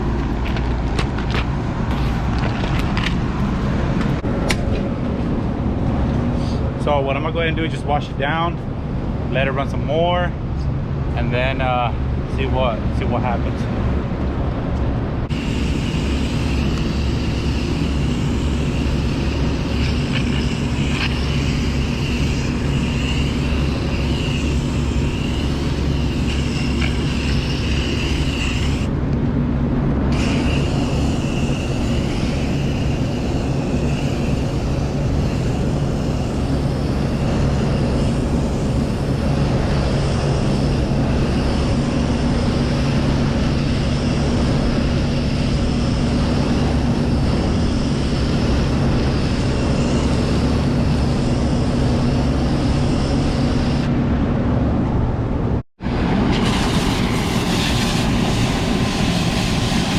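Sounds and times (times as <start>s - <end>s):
air conditioner motor hum: 0.0s - 59.9s
hose spraying water: 15.3s - 28.9s, 30.1s - 39.2s, 56.0s - 59.9s.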